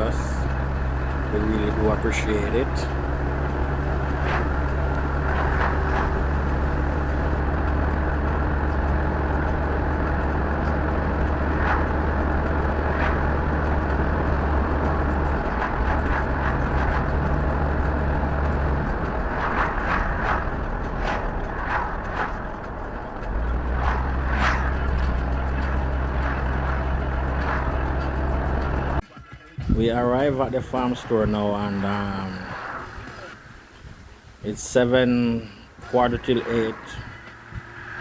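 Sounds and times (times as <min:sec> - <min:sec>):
vehicle engine and road noise: 0:00.0 - 0:29.0, 0:29.6 - 0:38.0.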